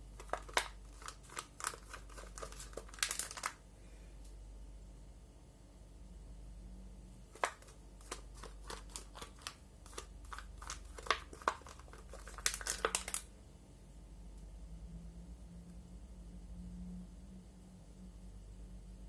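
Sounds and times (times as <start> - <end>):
crinkling and clicking: 0.0 - 3.6, 7.3 - 13.3
low steady hum: 0.0 - 19.0.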